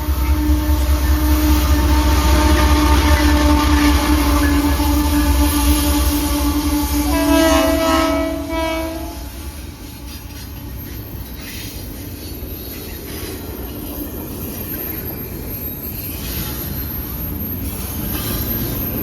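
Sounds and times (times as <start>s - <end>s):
train horn: 0.0s - 9.6s.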